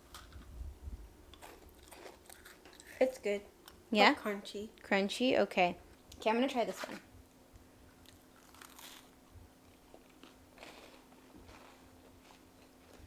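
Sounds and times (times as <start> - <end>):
person chewing crunchy cookie: 1.3 - 3.8, 7.9 - 13.0.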